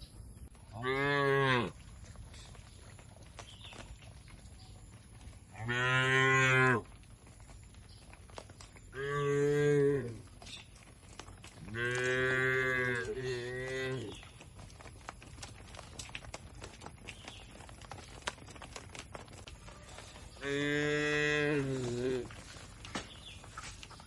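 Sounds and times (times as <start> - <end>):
cow mooing: 0.8 - 1.8, 5.6 - 6.8, 11.7 - 14.1, 20.4 - 22.3.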